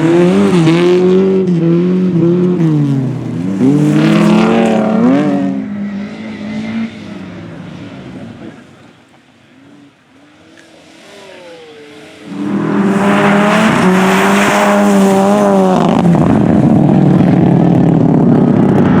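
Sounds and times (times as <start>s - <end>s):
rally car engine passing: 0.0s - 19.0s.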